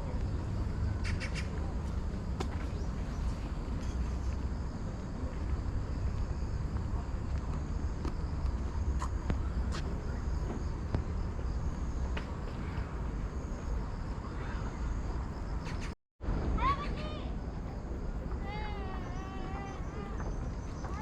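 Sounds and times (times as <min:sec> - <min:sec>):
low steady rumble: 0:00.0 - 0:15.6.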